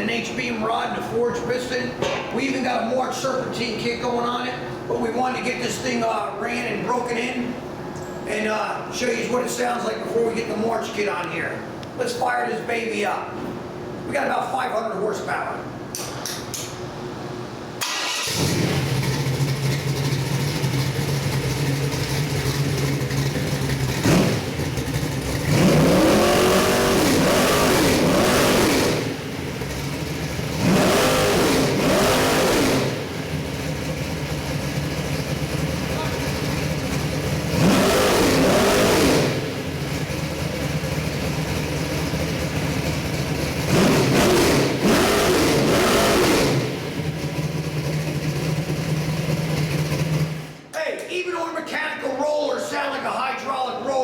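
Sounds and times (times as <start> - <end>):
engine idling and revving: 17.8 - 50.6
car engine starting: 17.8 - 50.7.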